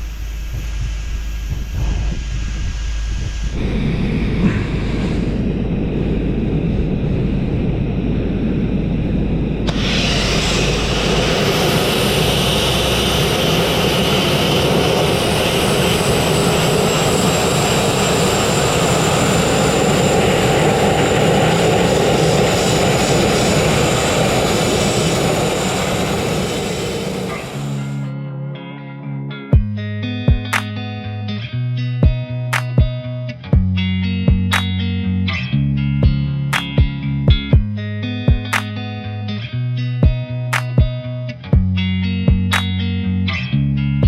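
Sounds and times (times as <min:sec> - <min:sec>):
abrasive blasting roar: 0:03.5 - 0:28.1.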